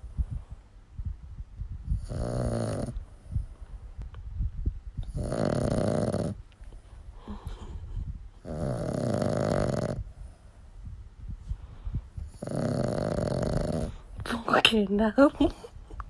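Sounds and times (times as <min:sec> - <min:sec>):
dog snoring: 0:01.9 - 0:03.1, 0:05.0 - 0:06.4, 0:08.4 - 0:10.4, 0:12.2 - 0:14.1.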